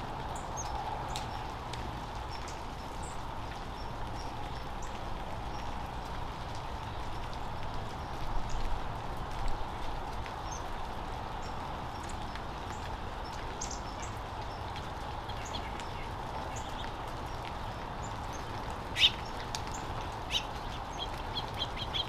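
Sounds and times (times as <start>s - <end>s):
steady outdoor hiss: 0.0s - 22.0s
birds chirping: 11.4s - 22.0s.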